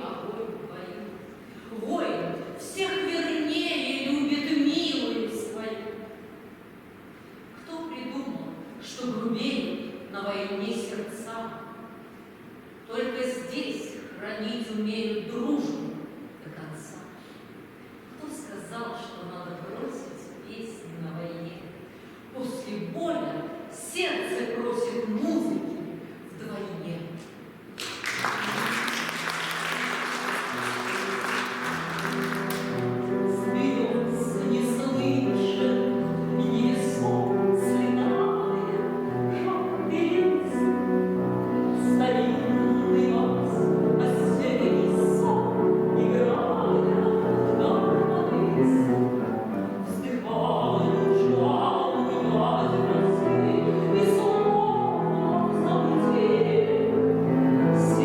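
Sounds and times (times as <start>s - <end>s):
audience applause: 27.8s - 33.1s
grand piano: 27.8s - 58.0s
woman singing classically: 32.3s - 58.0s.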